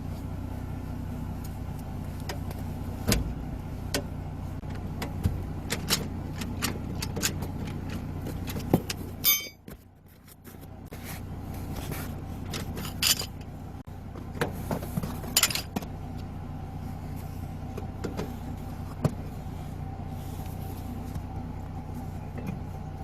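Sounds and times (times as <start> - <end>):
vehicle engine humming: 0.0 - 23.0
metallic clicks and knocks: 5.0 - 9.7.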